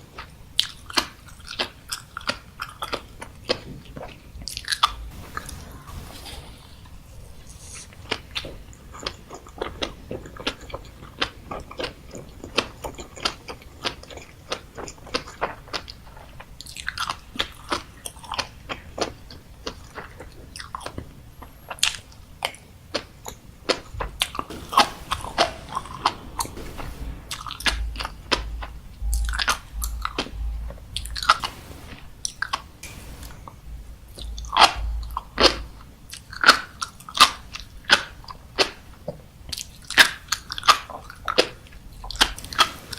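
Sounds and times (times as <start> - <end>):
chewing and crunching food: 8.1 - 24.4.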